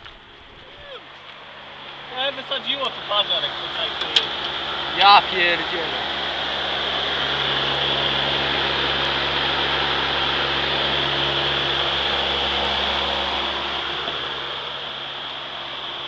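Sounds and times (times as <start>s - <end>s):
car engine humming: 0.0s - 16.0s.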